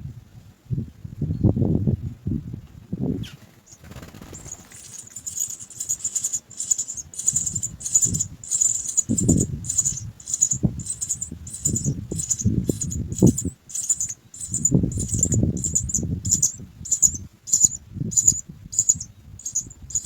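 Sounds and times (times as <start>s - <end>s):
nestlings begging calls: 3.9s - 20.0s
rustling in nest: 4.0s - 20.0s.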